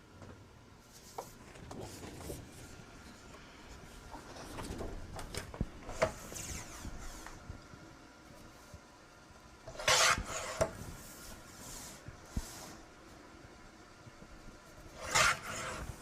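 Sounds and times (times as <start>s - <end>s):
paper rubbing and sliding: 5.9s - 7.4s, 14.8s - 16.0s.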